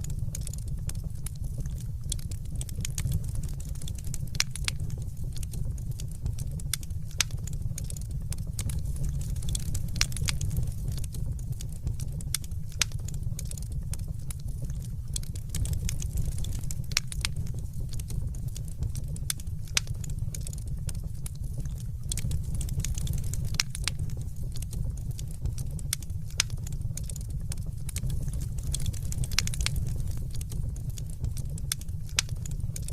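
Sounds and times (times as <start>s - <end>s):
fire crackles and pops: 0.0s - 32.9s
wood fire rumble: 0.0s - 32.9s.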